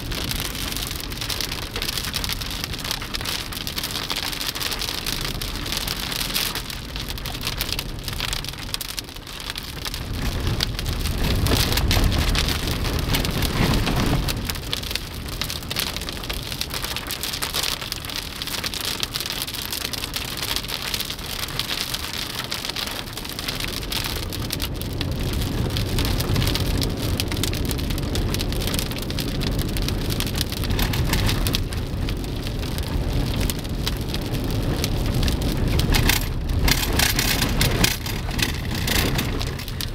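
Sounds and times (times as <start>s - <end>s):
heavy rain falling: 0.0s - 39.9s
low rumble: 9.5s - 16.4s, 25.0s - 39.9s.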